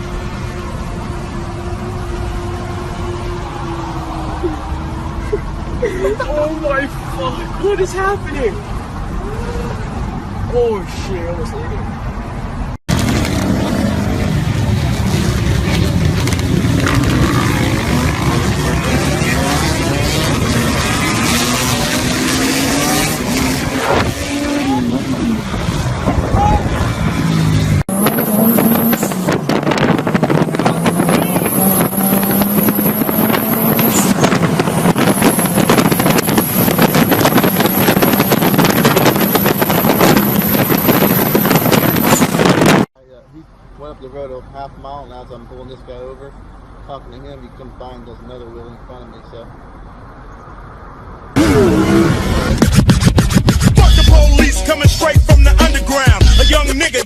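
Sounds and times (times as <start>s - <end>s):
wind and road noise: 0.0s - 57.0s.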